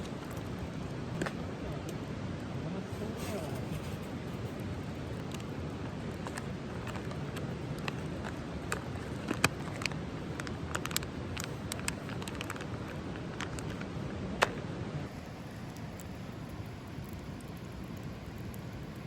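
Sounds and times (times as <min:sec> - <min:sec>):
campfire crackling and popping: 0:04.2 - 0:19.0.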